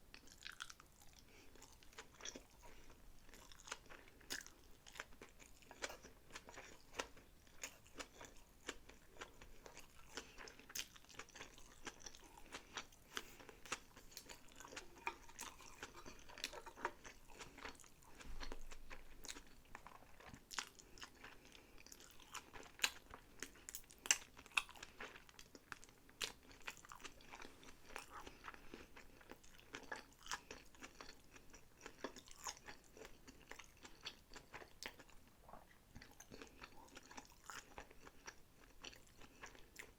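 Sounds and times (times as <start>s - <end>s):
wet chewing: 0.1s - 39.9s.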